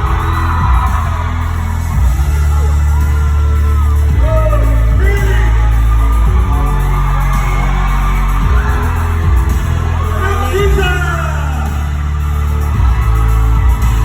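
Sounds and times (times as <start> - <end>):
people whooping and yelling: 0.0 - 14.0
pop music with singing: 0.0 - 14.0.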